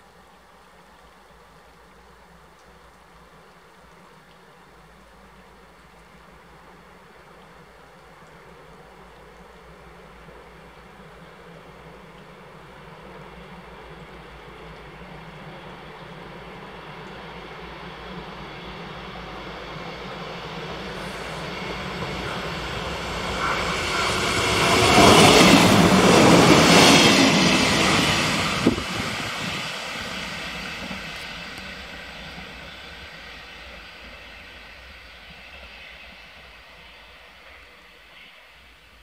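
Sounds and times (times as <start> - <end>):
diesel railcar passing: 10.3 - 39.0
train wheels on rails: 11.2 - 39.0.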